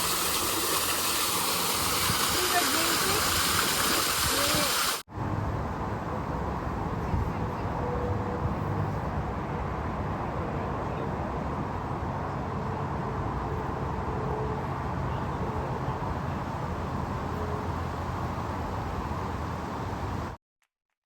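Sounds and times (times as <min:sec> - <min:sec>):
waterfall rushing: 0:00.0 - 0:05.0.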